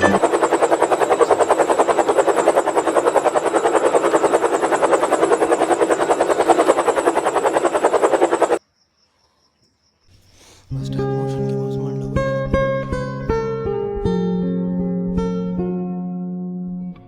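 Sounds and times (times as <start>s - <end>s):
helicopter rotor chopping: 0.0s - 8.6s.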